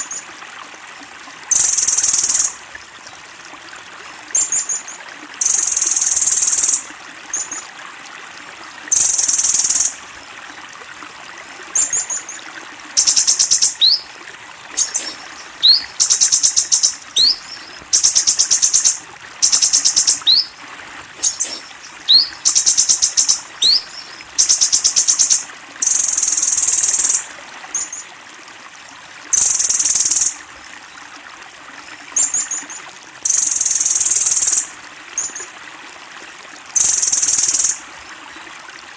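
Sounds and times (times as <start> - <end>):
sunbird singing high trills: 13.0 - 14.0, 14.8 - 20.5, 21.2 - 27.2.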